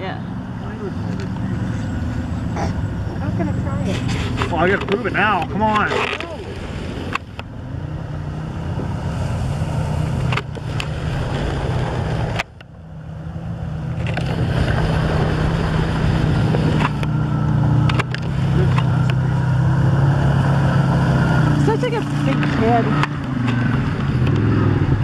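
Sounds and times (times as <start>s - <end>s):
atv engine running: 0.0s - 25.0s
water swishing: 1.2s - 24.1s.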